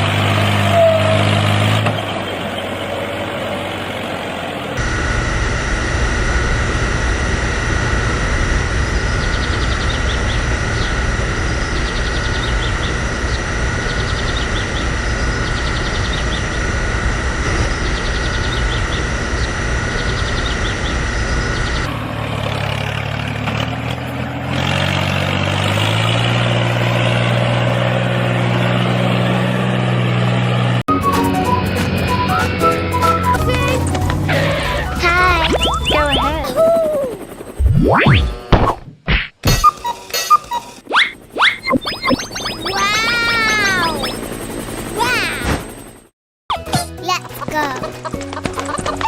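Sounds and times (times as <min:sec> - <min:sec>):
cartoon tractor engine: 0:00.0 - 0:49.0
low held tones rising: 0:31.0 - 0:38.5, 0:40.8 - 0:45.0.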